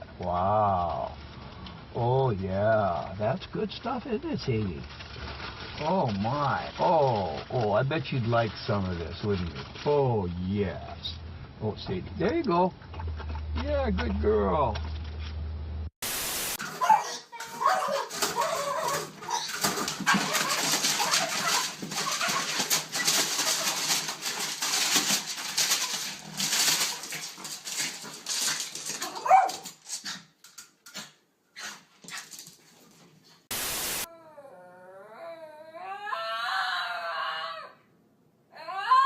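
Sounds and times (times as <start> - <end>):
rustling and clicking: 3.0 - 11.2, 12.0 - 15.5, 16.8 - 33.5
dog whining: 16.7 - 24.4, 29.0 - 29.7, 34.0 - 37.8
short burst of hiss: 33.5 - 34.1.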